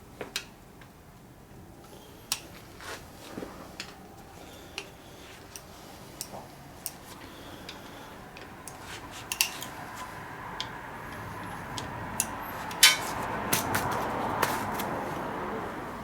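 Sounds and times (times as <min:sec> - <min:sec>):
metallic clicks of hand tools: 0:10.6 - 0:13.2.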